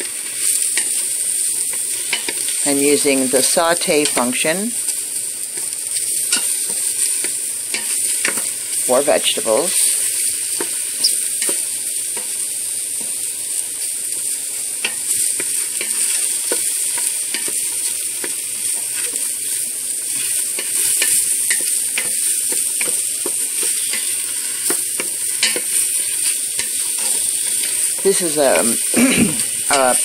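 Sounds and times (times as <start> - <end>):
mushrooms sizzling in oil: 0.0 - 30.0
utensil scraping metal pot: 20.0 - 30.0.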